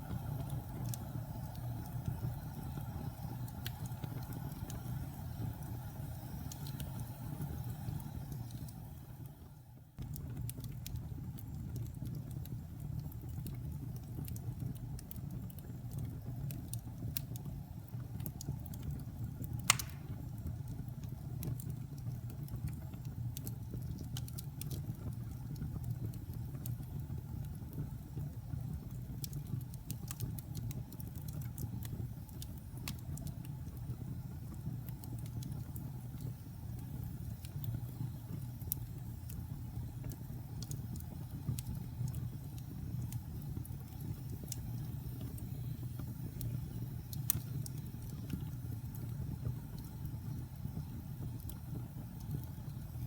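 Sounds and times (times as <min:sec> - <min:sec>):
fire crackling and popping: 0:00.0 - 0:53.0
wood fire burning: 0:00.0 - 0:53.0.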